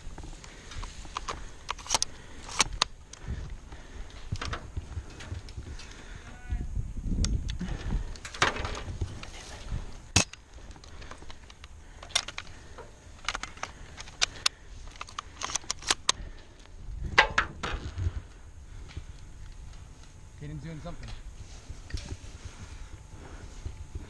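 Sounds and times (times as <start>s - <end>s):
sharp clicks and snaps: 0.1s - 6.2s, 7.2s - 18.0s.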